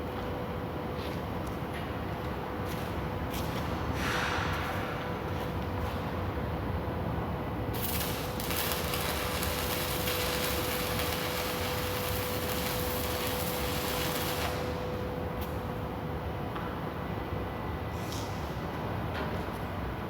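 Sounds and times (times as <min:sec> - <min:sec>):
constant low hum: 0:00.0 - 0:20.0
welding arc crackling hiss: 0:07.7 - 0:15.0.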